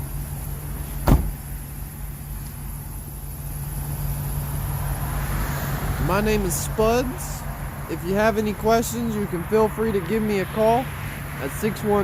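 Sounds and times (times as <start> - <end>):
truck engine idling: 0.0 - 5.2.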